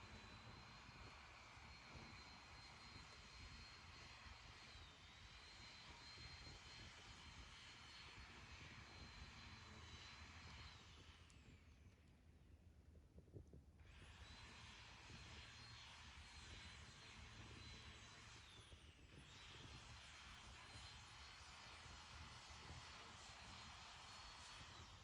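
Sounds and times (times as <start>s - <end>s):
thin high whine: 0.0s - 11.2s.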